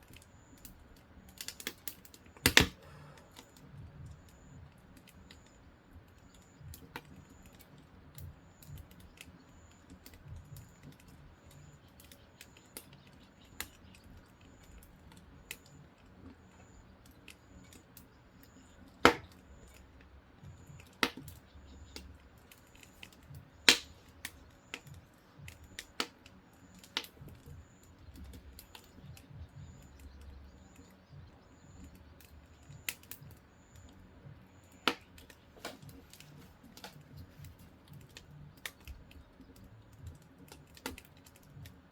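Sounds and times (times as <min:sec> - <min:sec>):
fire rumbling: 0:00.0 - 0:41.9
firewood crackling: 0:00.0 - 0:41.9
sharp wood pops: 0:01.3 - 0:02.8, 0:19.0 - 0:19.8, 0:20.5 - 0:22.1, 0:22.7 - 0:27.5, 0:34.8 - 0:41.7.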